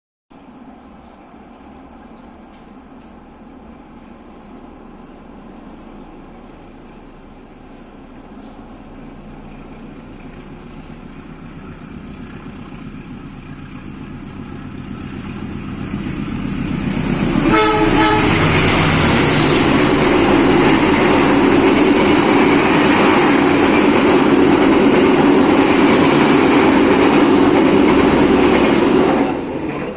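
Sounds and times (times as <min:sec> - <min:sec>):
wheel and rail noise: 0:00.4 - 0:29.9
train rumbling: 0:00.5 - 0:29.9
train horn blast: 0:17.2 - 0:21.6.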